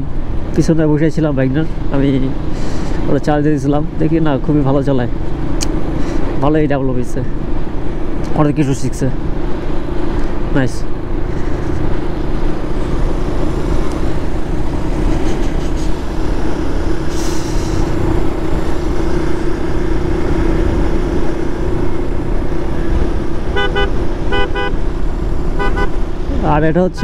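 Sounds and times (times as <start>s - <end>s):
motorcycle engine drone: 7.3s - 27.0s
wind rush: 9.2s - 26.6s
vehicle horn short beeps: 23.5s - 24.8s, 25.6s - 26.0s.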